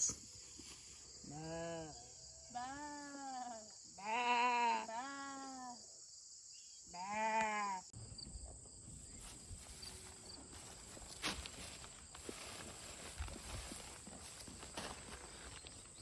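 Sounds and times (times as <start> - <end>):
rams bleating: 1.3 - 5.4, 7.0 - 7.8.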